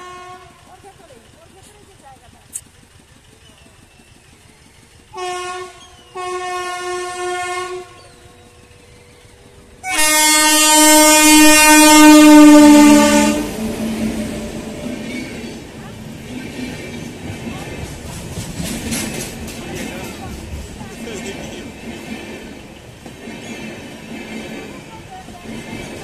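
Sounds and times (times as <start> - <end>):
locomotive horn blasts: 0.0 - 0.8, 5.1 - 8.4, 9.8 - 15.2
rumble of running train: 0.0 - 26.0.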